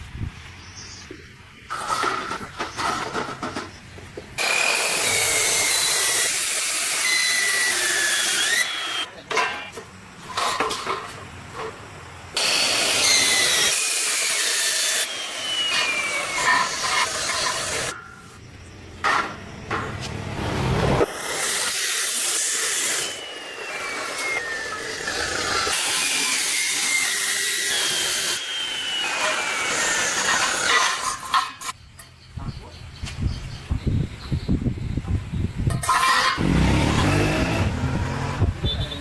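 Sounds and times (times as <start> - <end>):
power tool whining: 12.4 - 18.0, 20.1 - 31.3, 36.1 - 39.0.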